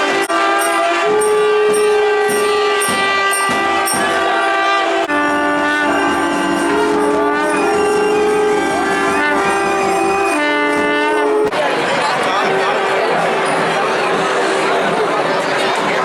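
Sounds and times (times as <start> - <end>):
double-reed wind instruments: 0.0 - 16.0
sharp metallic strikes: 0.2 - 10.8.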